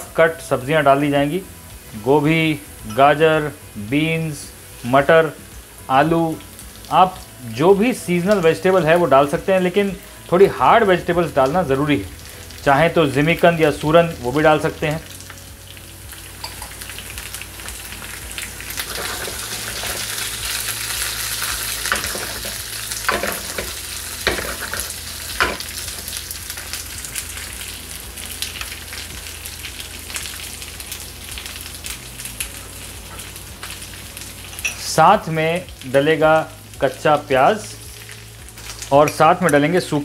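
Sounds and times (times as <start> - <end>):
vegetables sizzling in hot oil: 0.0 - 40.0
wooden spatula scraping pan: 18.9 - 20.1, 24.3 - 24.9.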